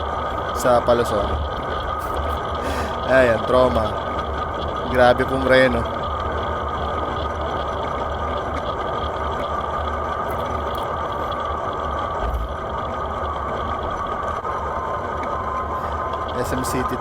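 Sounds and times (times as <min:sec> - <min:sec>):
road traffic noise: 0:00.6 - 0:04.2.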